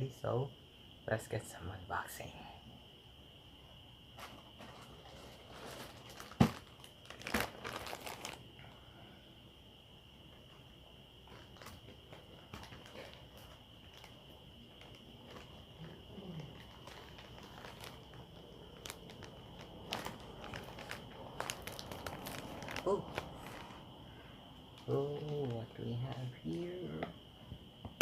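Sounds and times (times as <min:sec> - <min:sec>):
plastic mailer crinkling: 0:04.2 - 0:08.4, 0:11.2 - 0:23.8.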